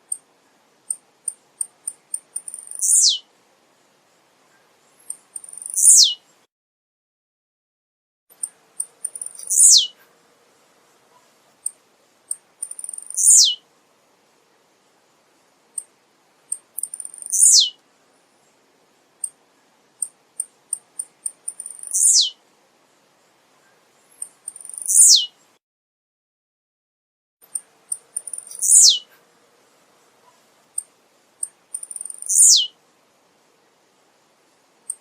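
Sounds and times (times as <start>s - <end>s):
high bird chips: 27.5s - 29.0s.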